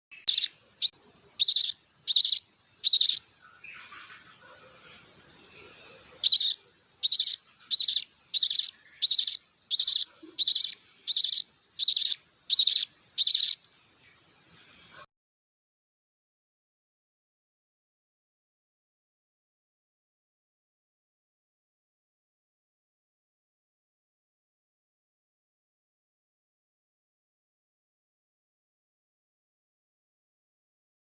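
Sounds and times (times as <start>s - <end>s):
bird chicks begging calls: 0.2s - 4.1s, 6.2s - 13.6s.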